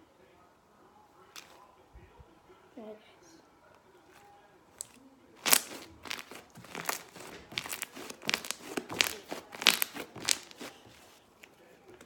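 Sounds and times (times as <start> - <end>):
slime squeezed with crackling pops: 4.8 - 10.8.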